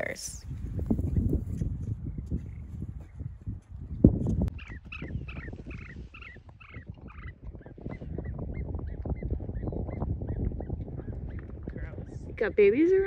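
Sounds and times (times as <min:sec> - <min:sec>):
bird calling: 0:04.5 - 0:11.5.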